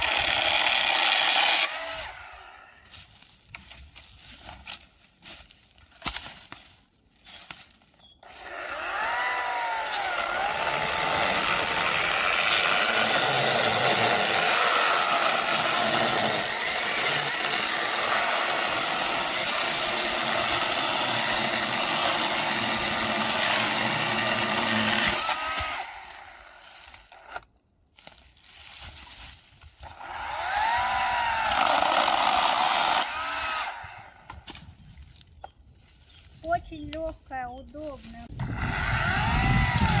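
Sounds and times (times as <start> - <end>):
chainsaw cutting firewood: 0.0 - 3.0, 8.2 - 27.5, 29.6 - 34.6, 38.3 - 40.0.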